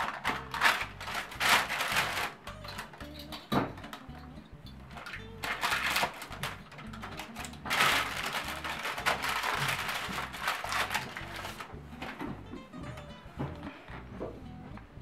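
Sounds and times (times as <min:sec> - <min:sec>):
baking paper crinkling: 0:00.0 - 0:03.2, 0:05.0 - 0:12.2
background music: 0:00.0 - 0:15.0.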